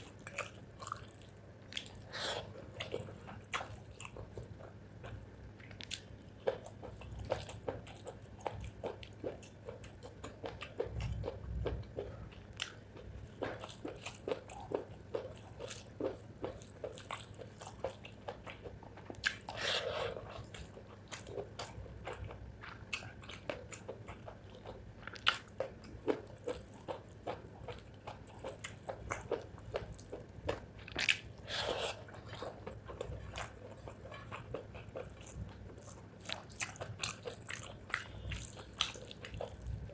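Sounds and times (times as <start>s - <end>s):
wet chewing and crunching: 0.0s - 39.9s.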